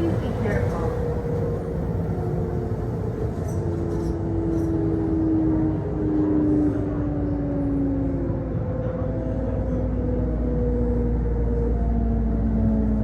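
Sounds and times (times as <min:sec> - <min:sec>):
train running rumble: 0:00.0 - 0:04.7.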